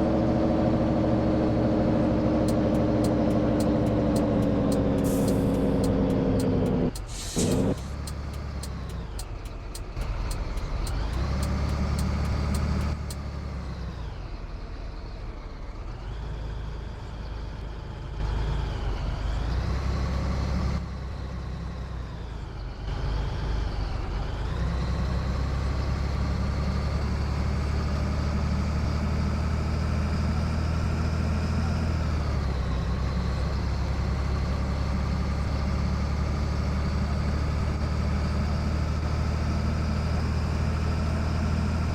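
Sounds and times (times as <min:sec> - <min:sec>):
truck diesel engine running: 0:00.0 - 0:41.9
short air hiss: 0:07.0 - 0:08.0.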